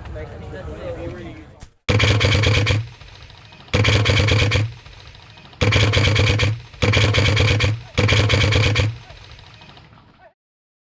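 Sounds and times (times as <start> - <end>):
airsoft gun bursts: 1.9 - 10.0.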